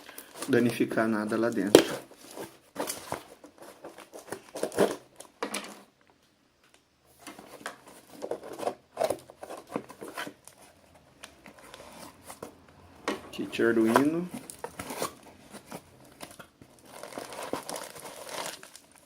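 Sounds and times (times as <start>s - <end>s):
package being torn open: 16.2s - 19.0s.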